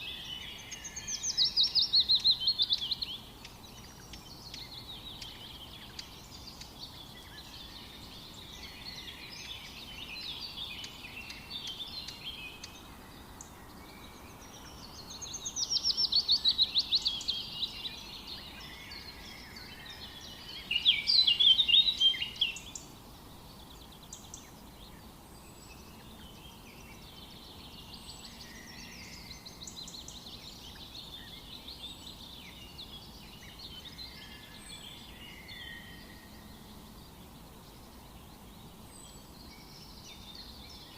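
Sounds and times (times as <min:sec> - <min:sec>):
birds singing and chirping: 0:00.0 - 0:40.9
dense burst of birdsong: 0:00.0 - 0:40.9.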